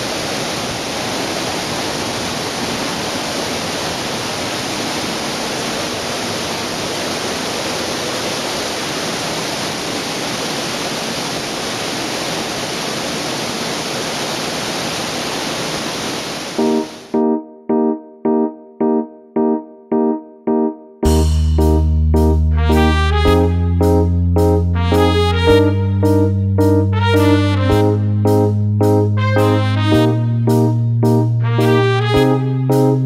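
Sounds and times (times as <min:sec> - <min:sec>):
waterfall rushing: 0:00.0 - 0:17.2.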